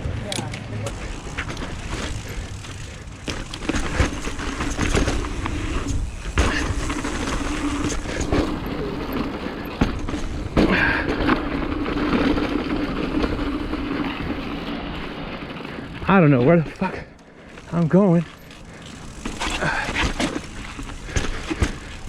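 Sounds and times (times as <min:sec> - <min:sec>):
bike rattling over bumps: 0:00.0 - 0:22.0
bike tyre noise on dirt: 0:00.0 - 0:22.0
wind: 0:00.0 - 0:22.0.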